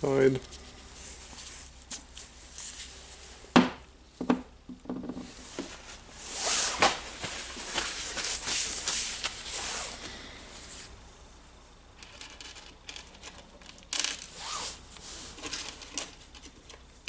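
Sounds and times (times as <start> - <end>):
metal parts rustling and scraping: 12.0 - 17.0.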